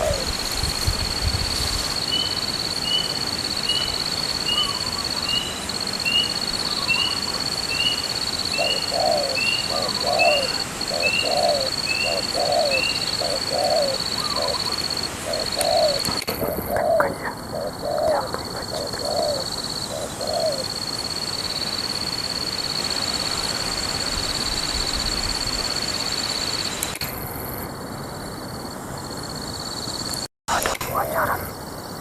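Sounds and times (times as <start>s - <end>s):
doves cooing: 0.0s - 0.5s, 6.1s - 21.0s.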